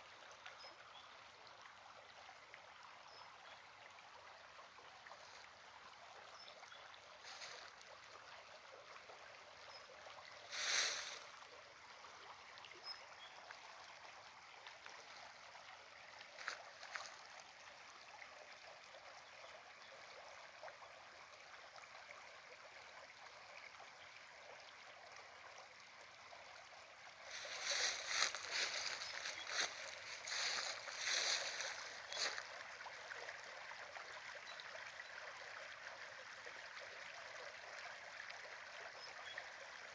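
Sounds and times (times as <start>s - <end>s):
small stream running: 0.0s - 39.9s
splashes or rustles: 10.5s - 11.3s, 27.2s - 32.5s.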